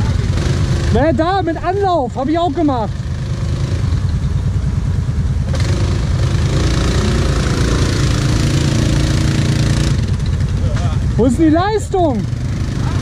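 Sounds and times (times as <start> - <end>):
quad engine revving: 0.0 - 4.2, 5.4 - 13.0
quad bike engines idling: 0.0 - 13.0.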